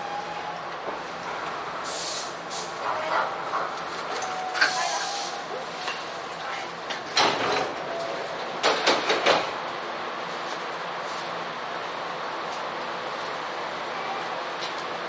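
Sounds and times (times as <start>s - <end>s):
electric train hum: 0.0s - 15.0s
air hissing: 1.8s - 2.8s.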